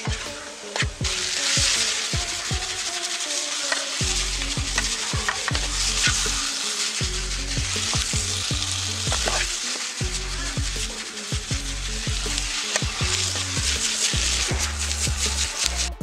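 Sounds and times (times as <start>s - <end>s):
background music: 0.0s - 16.0s
food sizzling in hot oil: 0.0s - 16.0s.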